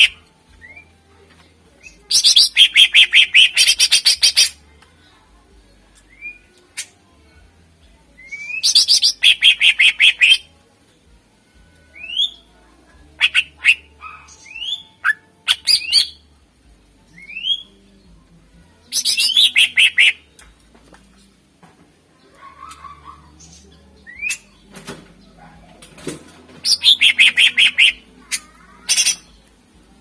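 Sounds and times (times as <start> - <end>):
bird singing rapid notes: 18.9 - 20.2, 26.6 - 29.4.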